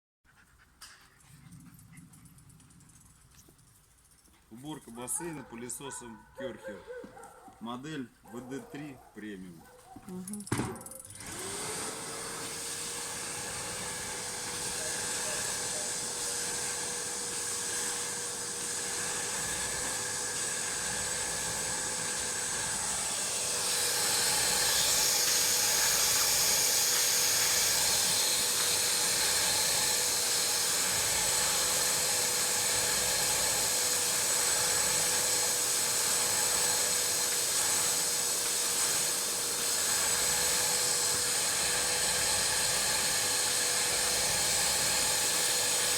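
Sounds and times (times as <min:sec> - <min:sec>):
vacuum cleaner running: 0:10.6 - 0:45.9.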